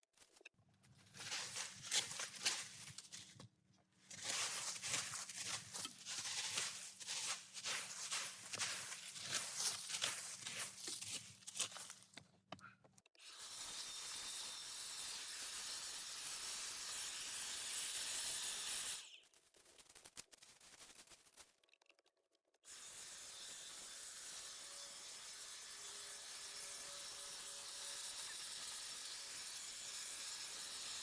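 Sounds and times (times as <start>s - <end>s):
leaves scraped off a path: 1.0s - 3.3s, 4.1s - 12.1s.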